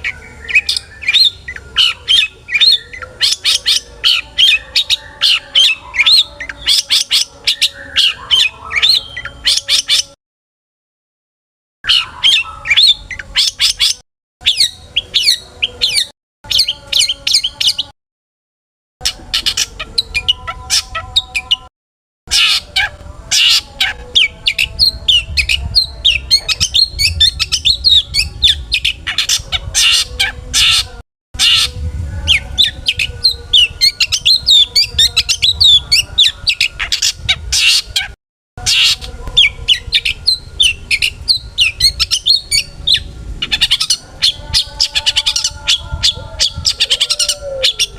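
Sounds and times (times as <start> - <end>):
shrike singing fast varied song: 0.0 - 10.2, 11.8 - 17.9, 22.3 - 30.8.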